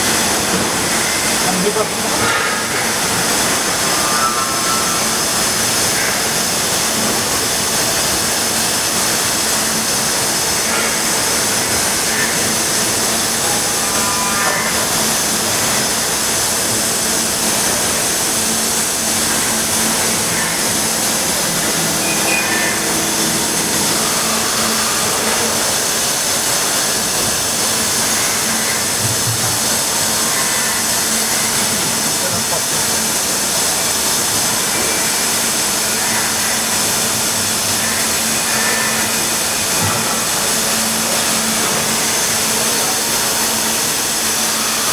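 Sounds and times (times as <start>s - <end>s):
distant voices: 0.0s - 44.9s
workshop machinery hiss: 0.0s - 44.9s
low hum: 13.0s - 26.7s.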